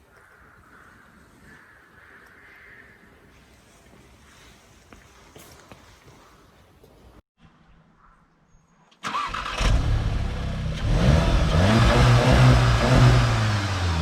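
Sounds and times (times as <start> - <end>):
car engine starting and revving: 9.0 - 14.0.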